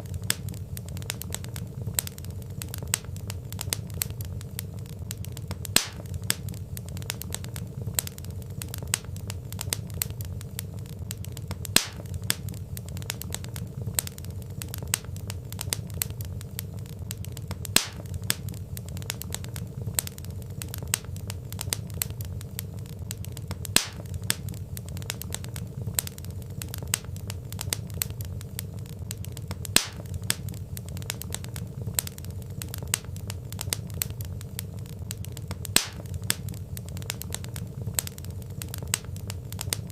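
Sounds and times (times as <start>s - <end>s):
low rumble of burning: 0.0s - 39.9s
wood fire crackling and popping: 0.0s - 39.9s.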